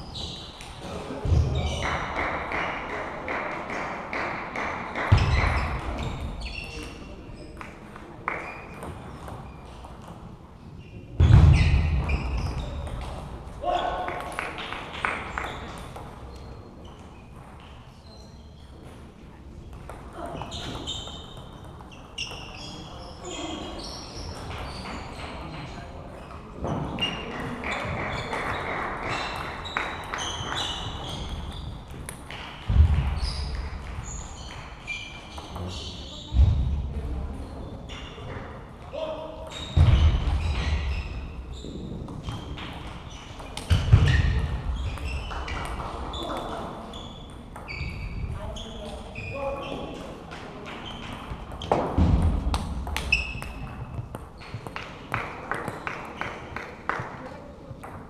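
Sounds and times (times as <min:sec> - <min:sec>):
table tennis balls knocking: 0:50.6 - 0:56.6.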